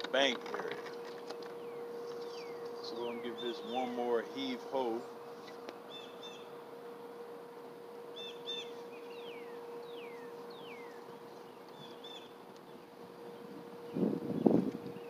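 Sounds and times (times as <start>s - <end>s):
faint steady hum: 0.0s - 15.0s
songbirds chirping: 0.8s - 15.0s
whistled bird notes: 8.1s - 11.1s, 11.7s - 12.3s.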